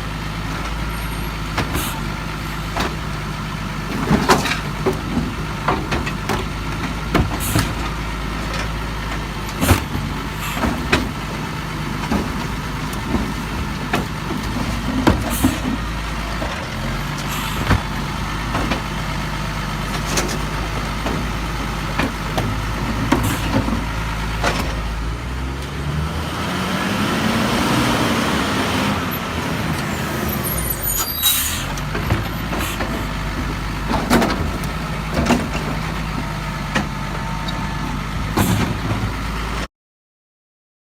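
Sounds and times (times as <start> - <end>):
diesel engine idling and revving: 0.0 - 39.7
knocks and clanks: 2.7 - 3.2, 3.9 - 16.6, 17.2 - 19.0, 19.8 - 24.9, 31.8 - 37.0.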